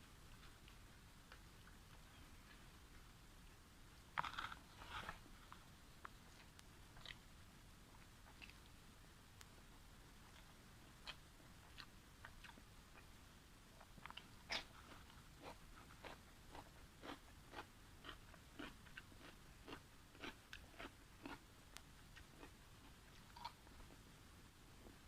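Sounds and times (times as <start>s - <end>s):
person chewing food: 4.2s - 7.3s, 8.0s - 8.7s, 10.3s - 13.1s, 13.8s - 21.5s, 22.1s - 23.7s.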